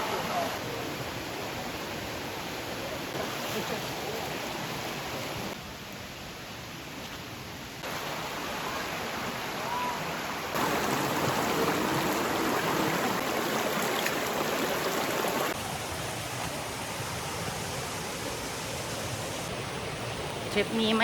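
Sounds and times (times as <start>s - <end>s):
stream water rushing: 0.0s - 21.0s.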